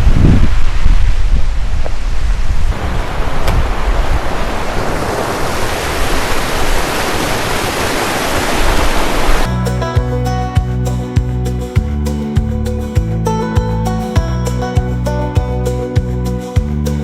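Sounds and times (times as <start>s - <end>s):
river rushing: 1.5s - 9.5s
acoustic guitar music: 9.5s - 17.0s.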